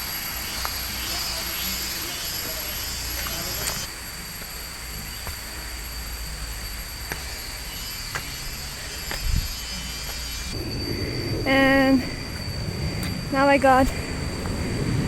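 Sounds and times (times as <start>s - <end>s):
high-pitched whine: 0.0s - 15.0s
low outdoor rumble: 10.5s - 15.0s.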